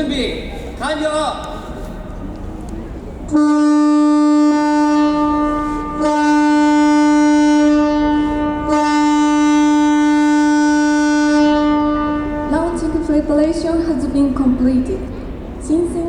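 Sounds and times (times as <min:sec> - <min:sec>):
signal horn long blast: 0:03.3 - 0:13.0.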